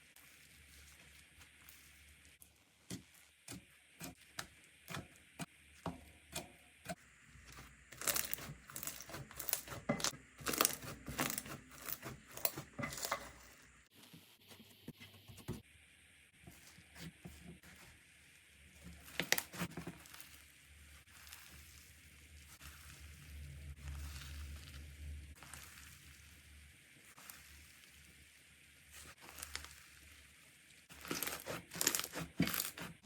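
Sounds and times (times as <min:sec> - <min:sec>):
slime crackling and popping: 0:08.0 - 0:09.7, 0:29.0 - 0:30.0, 0:30.9 - 0:32.9.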